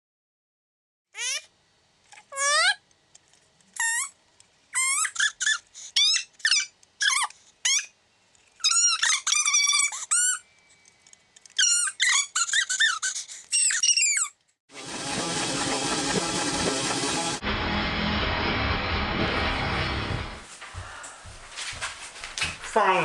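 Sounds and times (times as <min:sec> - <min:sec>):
high-pitched sliding squeaks: 0:08.5 - 0:10.6, 0:11.5 - 0:14.4.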